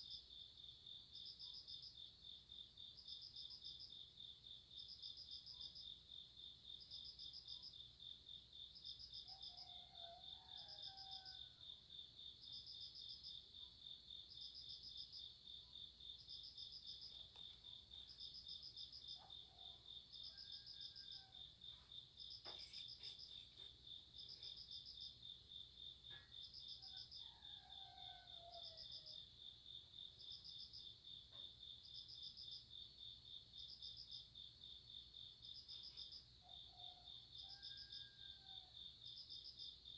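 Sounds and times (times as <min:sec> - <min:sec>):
insect steady fast trill: 0:00.0 - 0:38.2
insect chirping in short bursts: 0:22.4 - 0:24.8.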